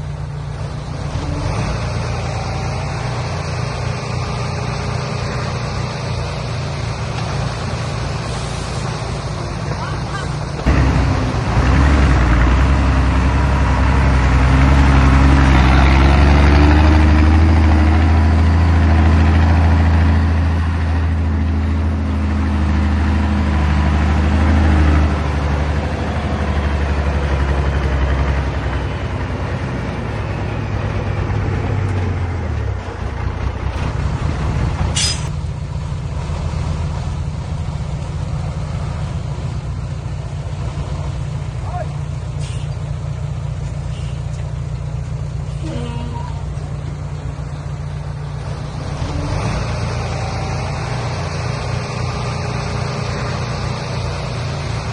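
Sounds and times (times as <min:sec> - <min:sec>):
diesel truck engine idling: 0:00.0 - 0:54.9.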